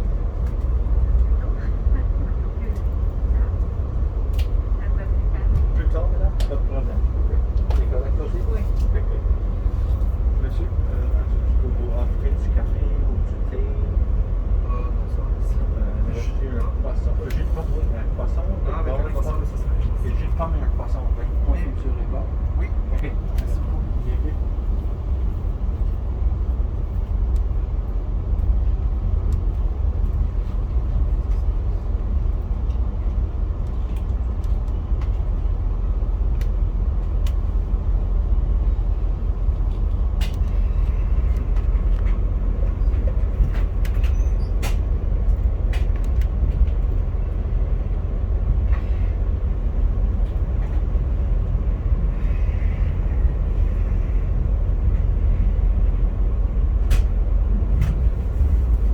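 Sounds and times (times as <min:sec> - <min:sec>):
train rumbling on tracks: 0:00.0 - 0:58.9
light clicks and rattles: 0:39.5 - 0:51.7.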